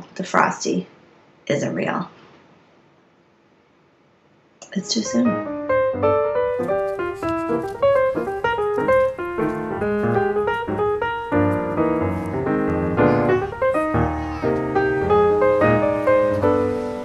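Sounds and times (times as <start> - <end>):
piano music: 4.8 - 17.0.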